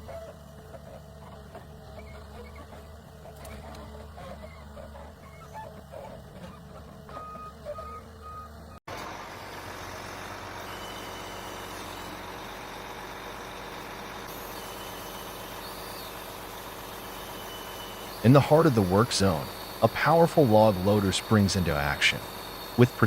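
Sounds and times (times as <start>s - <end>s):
heavy machine engine running: 0.0s - 23.0s
back-up alarm beeps: 7.1s - 8.8s.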